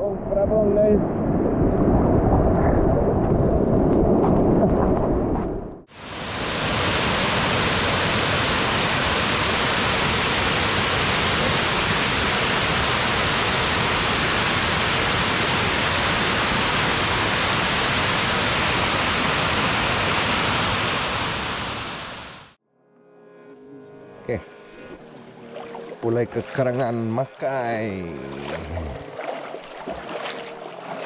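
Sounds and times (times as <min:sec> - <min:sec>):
waterfall rushing: 0:05.9 - 0:22.6.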